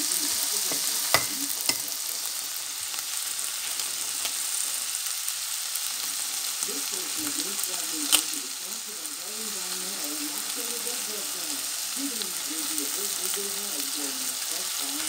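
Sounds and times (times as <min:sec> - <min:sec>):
cabbage sizzling in skillet: 0:00.0 - 0:15.0.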